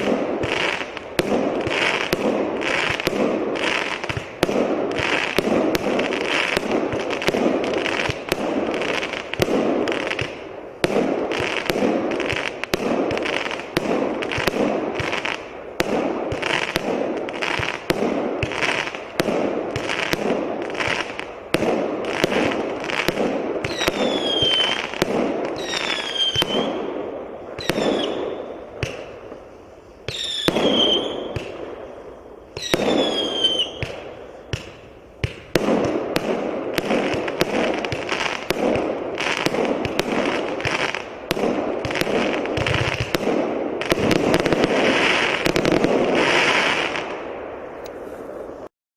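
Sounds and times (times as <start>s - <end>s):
firework shots popping: 0.0s - 29.5s, 30.1s - 31.9s, 32.6s - 48.6s
firework falling whistle: 23.7s - 24.8s, 25.6s - 26.8s, 27.6s - 28.6s, 30.1s - 31.5s, 32.6s - 34.0s.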